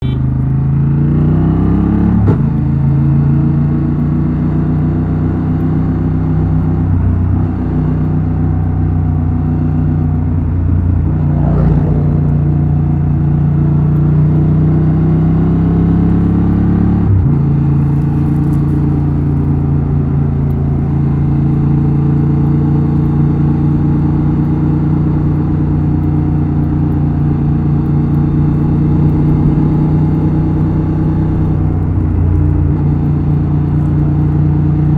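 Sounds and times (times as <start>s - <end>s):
motorcycle exhaust: 0.0s - 34.9s
gear change: 7.1s - 14.5s, 16.9s - 21.7s, 25.2s - 34.9s.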